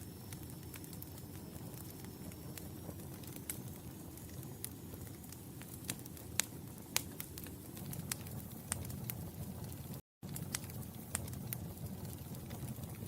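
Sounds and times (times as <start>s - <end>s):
low rumble of flames: 0.0s - 13.0s
wood fire crackling and popping: 0.0s - 13.0s.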